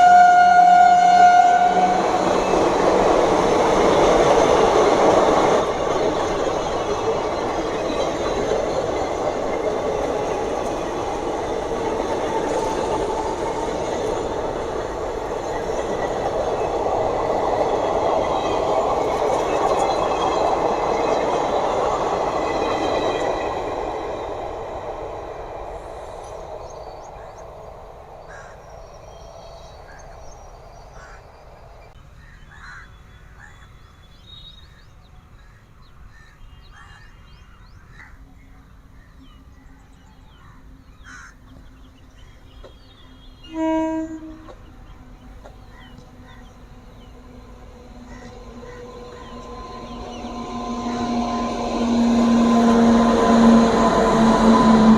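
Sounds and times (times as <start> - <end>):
station ambience: 0.0 - 28.2, 44.3 - 54.9
train wheels rumbling past: 0.0 - 32.0, 39.4 - 54.9.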